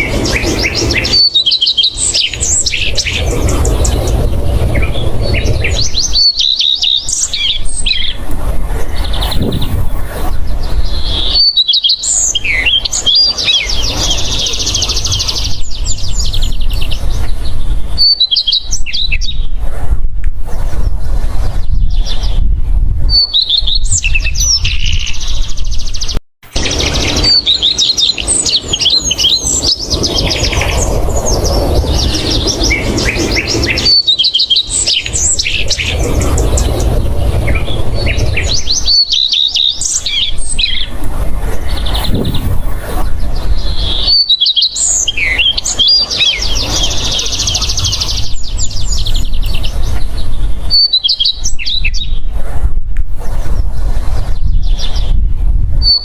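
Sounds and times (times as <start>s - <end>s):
low rubbing rumble: 0.0s - 11.4s, 24.4s - 44.2s
bird chirps and trills: 0.0s - 19.6s, 20.6s - 52.3s, 53.4s - 56.0s.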